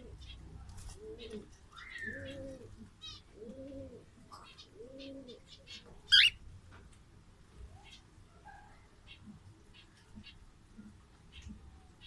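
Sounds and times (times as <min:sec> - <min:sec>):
pigeons cooing: 0:00.0 - 0:06.4.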